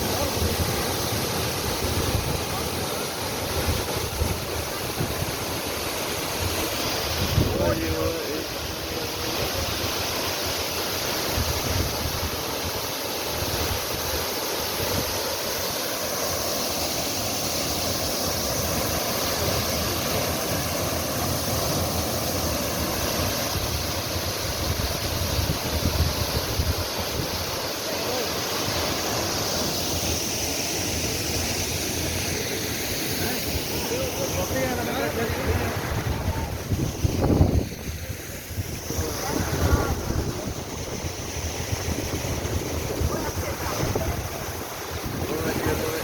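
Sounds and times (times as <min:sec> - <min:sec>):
waterfall rushing: 0:00.0 - 0:46.0
wind buffeting microphone: 0:35.6 - 0:46.0.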